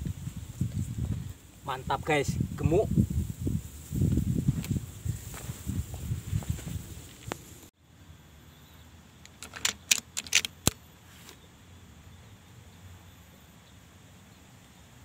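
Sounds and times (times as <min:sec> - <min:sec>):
jingling metal clicks: 0:09.2 - 0:10.8.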